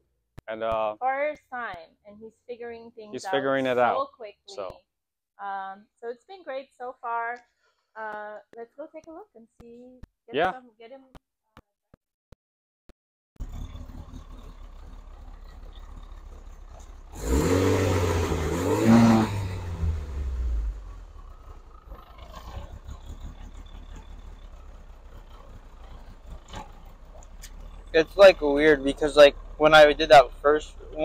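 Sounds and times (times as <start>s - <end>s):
car engine idling and revving: 3.1s - 4.7s, 13.4s - 31.0s.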